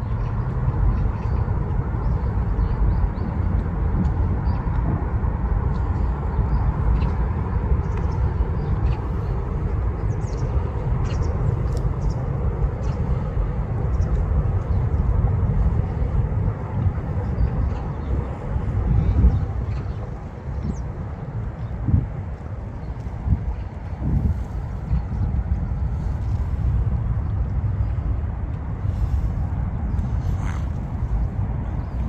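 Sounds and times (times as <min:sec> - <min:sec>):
distant traffic: 0:00.0 - 0:32.0
wind: 0:00.0 - 0:32.0
faint bird calls: 0:30.0 - 0:32.0.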